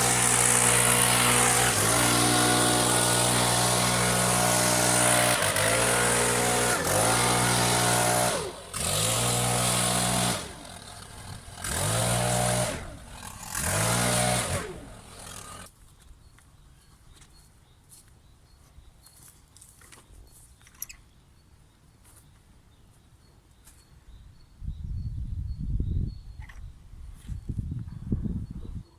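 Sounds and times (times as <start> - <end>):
wood chipper engine running: 0.0 - 15.7.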